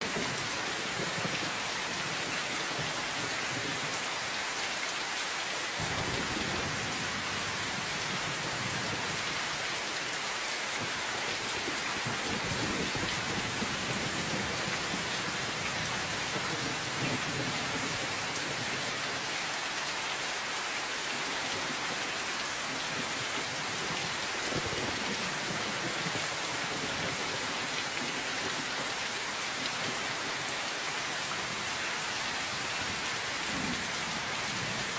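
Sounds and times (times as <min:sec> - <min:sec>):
steady rain hissing: 0:00.0 - 0:34.9
thunder rumbles: 0:05.8 - 0:09.3.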